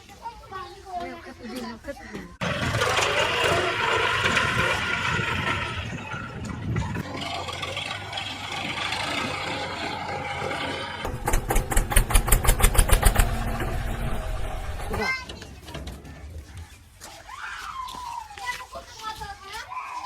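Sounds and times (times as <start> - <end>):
tractor diesel engine running: 2.4 - 15.1.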